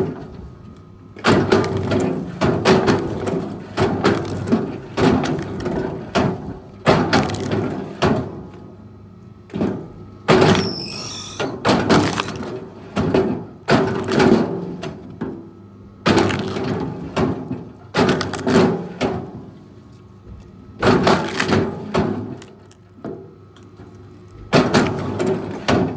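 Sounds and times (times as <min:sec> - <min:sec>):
low steady machine hum: 0:00.0 - 0:25.9
wood cracking and breaking: 0:06.9 - 0:07.8, 0:11.8 - 0:12.6, 0:16.1 - 0:16.9, 0:18.0 - 0:18.6, 0:20.8 - 0:22.8
high squeal: 0:10.6 - 0:11.5.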